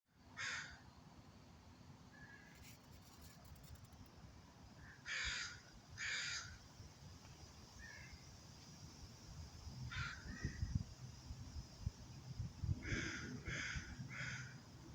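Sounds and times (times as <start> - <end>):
bird giving rough calls: 4.8 - 6.6, 12.8 - 14.6.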